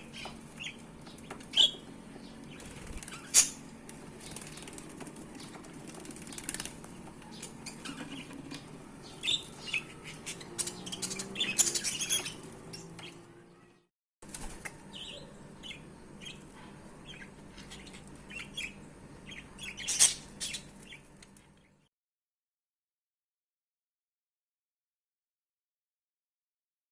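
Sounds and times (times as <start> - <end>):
wings rustling and fluttering: 0.0 - 13.2, 14.2 - 15.0
nestling birds chirping: 0.0 - 13.8, 14.4 - 21.8.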